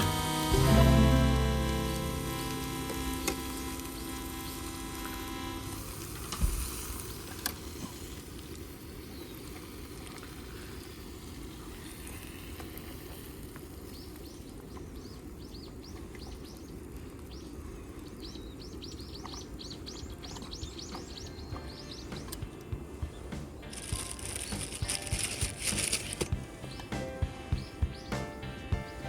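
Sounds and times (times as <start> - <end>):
small birds chirping: 0.0 - 5.4, 6.9 - 11.0, 12.4 - 29.0
low outdoor rumble: 21.7 - 29.0.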